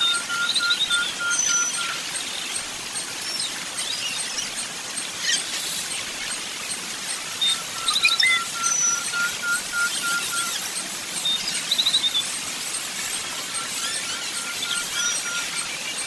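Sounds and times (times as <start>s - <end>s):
bird chirps and trills: 0.0s - 16.0s
high ticking bird note: 7.1s - 15.9s.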